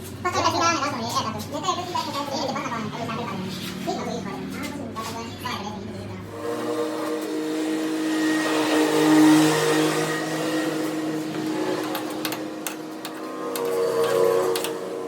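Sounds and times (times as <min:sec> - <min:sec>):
power tool motor grinding: 0:06.2 - 0:15.0.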